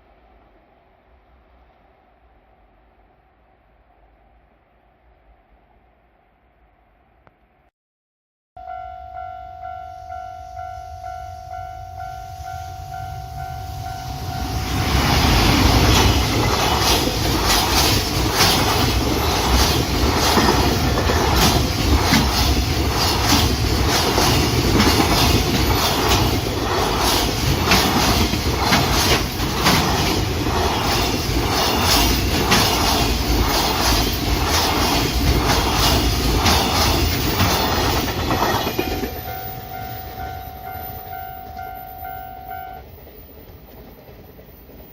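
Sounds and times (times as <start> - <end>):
freight train wheels clattering: 14.4 - 41.6
level crossing bell ringing: 39.2 - 42.8.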